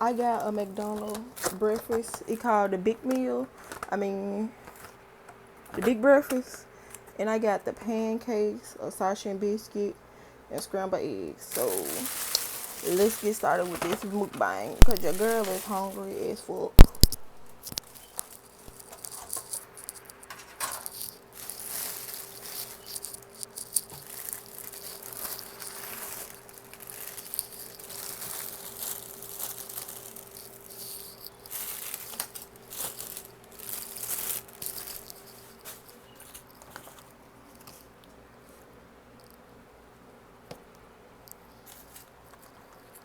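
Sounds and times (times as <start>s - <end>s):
food packaging crinkling: 0.0s - 5.0s, 11.4s - 38.6s, 41.3s - 43.0s
faint steady hum: 0.0s - 43.0s.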